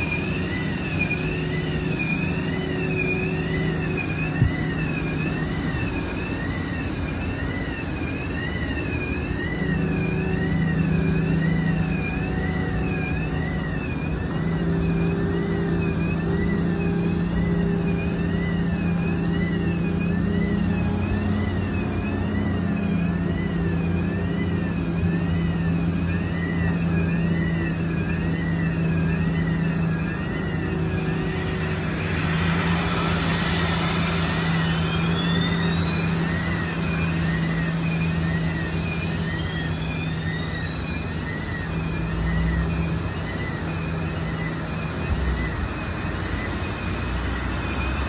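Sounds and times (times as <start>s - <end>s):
low engine hum: 0.0s - 48.0s
high warbling tone: 19.9s - 47.7s.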